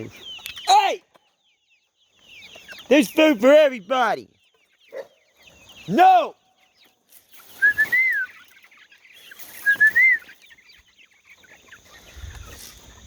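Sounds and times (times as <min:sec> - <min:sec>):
rustling scuffle: 0:12.0 - 0:13.0.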